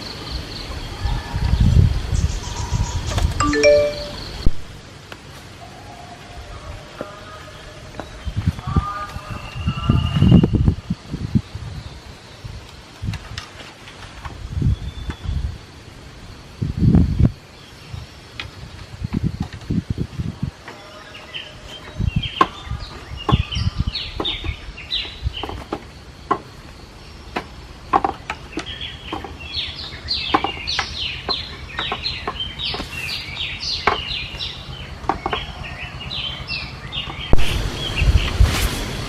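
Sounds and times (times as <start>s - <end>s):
descending bird chirps: 3.4s - 4.5s.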